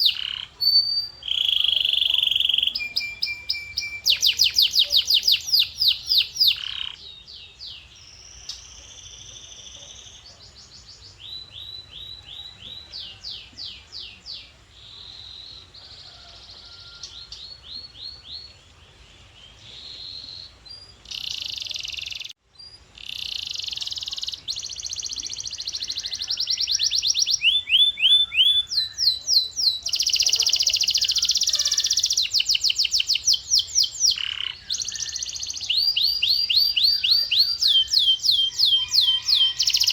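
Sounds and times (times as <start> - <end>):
canary singing: 0.0 - 18.6, 19.7 - 39.9.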